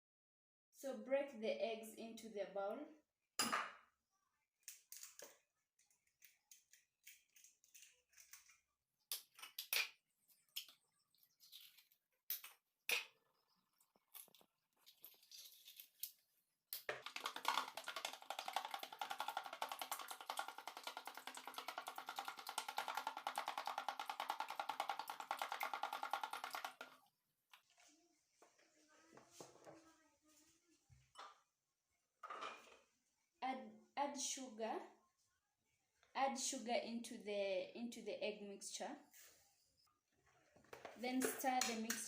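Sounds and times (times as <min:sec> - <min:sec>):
eggs beaten in a bowl: 0:16.8 - 0:27.0
eggshells and utensils tapping: 0:16.8 - 0:27.0.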